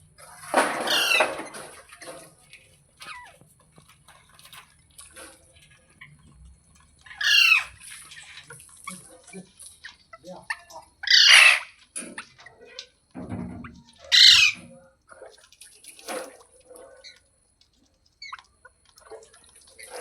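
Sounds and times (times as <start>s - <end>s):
parrot squawking: 0.8s - 1.5s, 7.1s - 7.8s, 10.5s - 12.3s, 13.7s - 14.8s
soft chirps and clicks: 17.0s - 19.8s.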